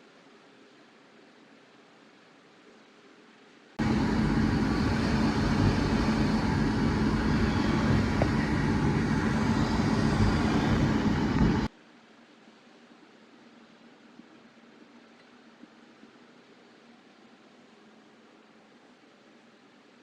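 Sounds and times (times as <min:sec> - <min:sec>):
machine running with low hum: 0:03.8 - 0:11.7.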